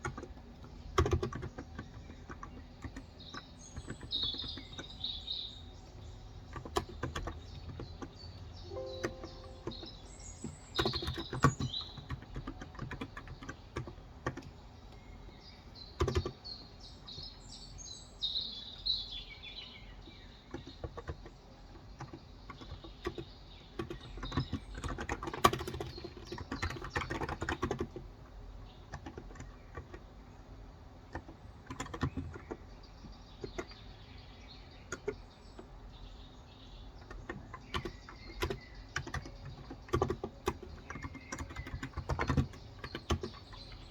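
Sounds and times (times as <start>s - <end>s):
birds chirping: 1.8s - 12.6s, 32.4s - 43.9s
keyboard typing: 8.7s - 14.5s, 37.2s - 43.9s.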